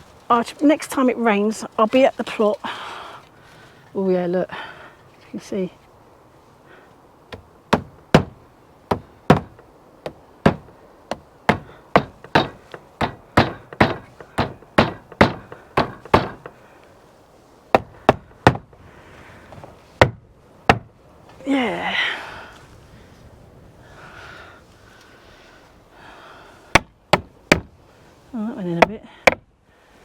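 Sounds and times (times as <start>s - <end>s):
hammer striking tacks: 7.3s - 16.6s.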